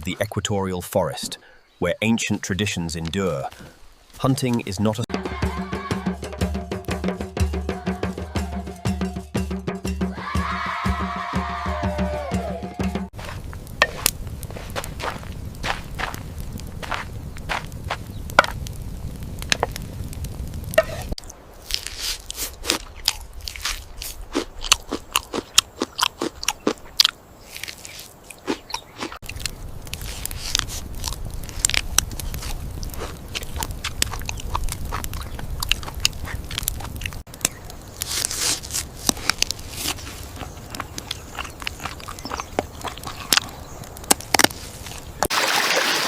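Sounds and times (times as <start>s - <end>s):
crunching and crackling clicks: 13.4s - 44.6s.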